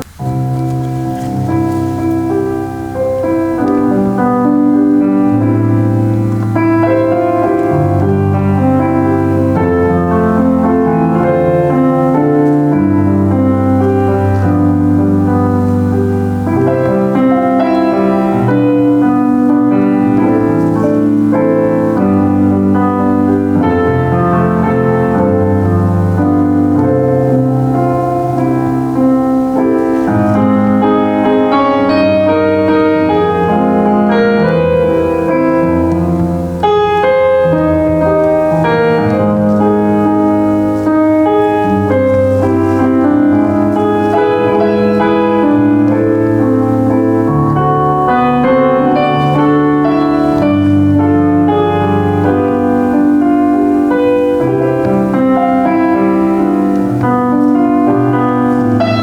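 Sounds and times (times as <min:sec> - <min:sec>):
solo piano playing chords: 0:00.0 - 0:59.0.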